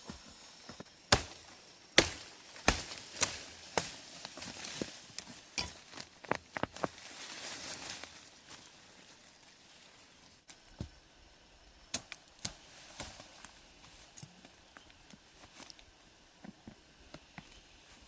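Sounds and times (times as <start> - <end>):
blade chopping wood: 2.0 - 3.9.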